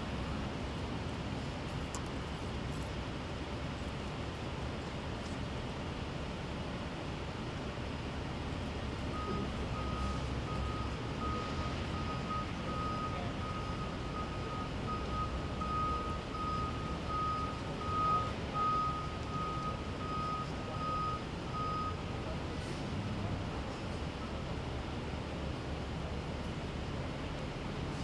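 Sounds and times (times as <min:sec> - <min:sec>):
engine rumble: 0:00.0 - 0:28.0
reversing alarm beeping: 0:09.1 - 0:22.1.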